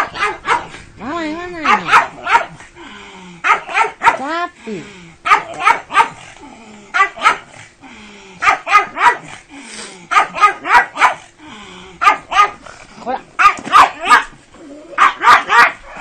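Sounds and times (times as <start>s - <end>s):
dog barking excitedly: 0.0s - 0.9s, 1.6s - 2.6s, 3.4s - 4.4s, 5.2s - 6.3s, 6.9s - 7.6s, 8.4s - 9.4s, 10.1s - 11.3s, 12.0s - 12.6s, 13.4s - 16.0s.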